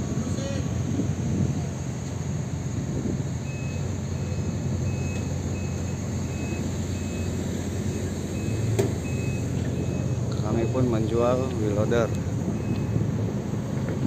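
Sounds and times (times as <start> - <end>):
diesel engine rumbling: 0.0 - 14.0
backup alarm beeping: 3.4 - 11.4, 12.5 - 13.0.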